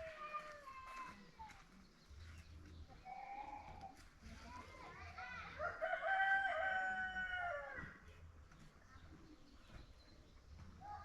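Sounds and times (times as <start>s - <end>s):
rooster crowing: 5.9s - 7.8s.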